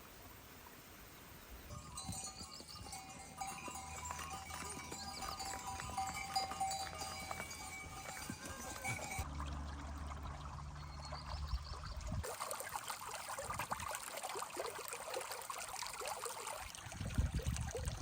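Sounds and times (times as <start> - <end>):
livestock bells ringing: 1.7 - 9.2.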